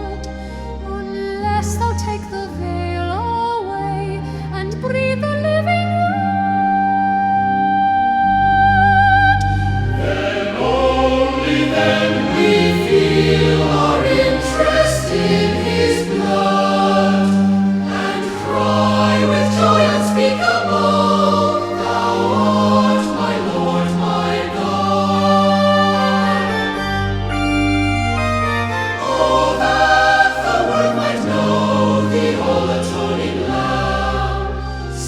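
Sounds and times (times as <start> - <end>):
choir singing a hymn: 9.4 - 27.5, 28.7 - 35.0.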